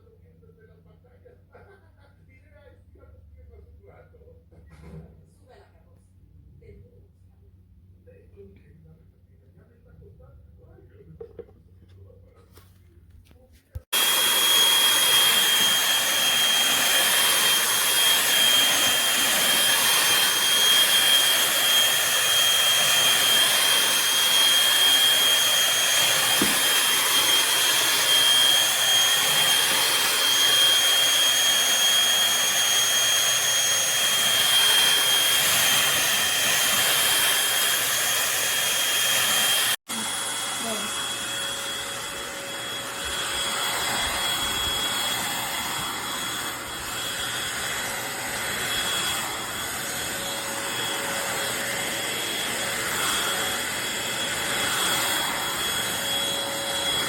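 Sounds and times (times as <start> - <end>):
vacuum cleaner running: 13.8 - 57.0.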